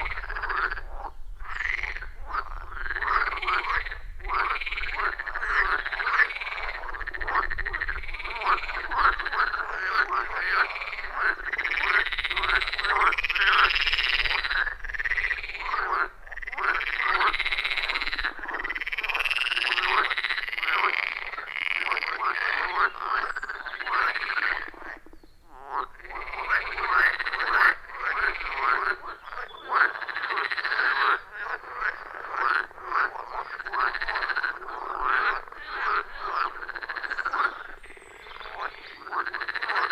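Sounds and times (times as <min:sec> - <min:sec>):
frogs croaking in chorus: 0:00.0 - 0:39.9.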